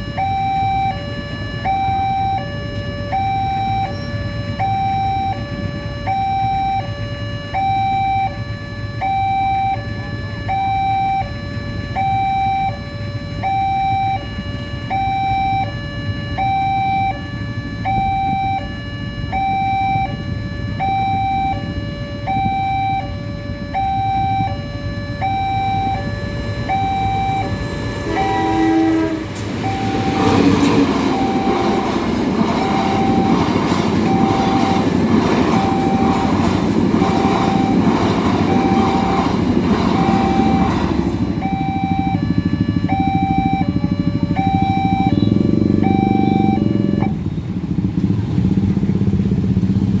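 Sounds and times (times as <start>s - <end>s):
level crossing two-tone alarm: 0.0s - 47.3s
train horn blast: 27.4s - 41.2s
train wheels clattering over rails: 27.4s - 41.6s.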